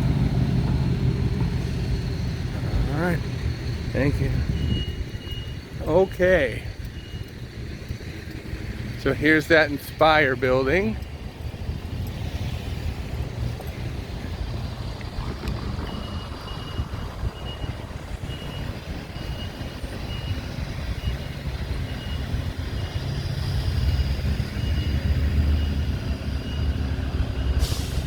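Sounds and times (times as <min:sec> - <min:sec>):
street traffic rumble: 0:00.0 - 0:28.0
wind on microphone: 0:12.9 - 0:19.8.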